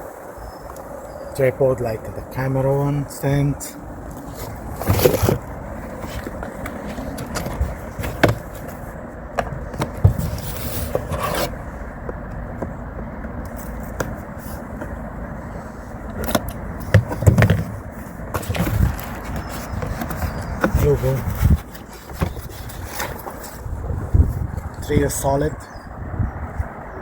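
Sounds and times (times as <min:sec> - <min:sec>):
light stand clicks and scrapes: 0:09.8 - 0:11.6.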